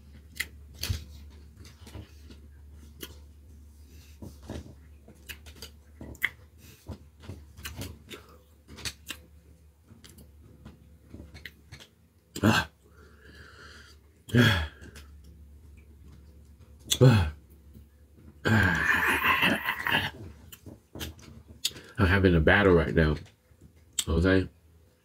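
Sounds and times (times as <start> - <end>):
close-up chewing: 4.2 - 9.3
wet mouth clicks and smacks: 5.2 - 6.4, 8.8 - 9.2
low throat sounds: 12.3 - 12.8, 14.3 - 15.1, 16.9 - 17.4, 18.4 - 20.3.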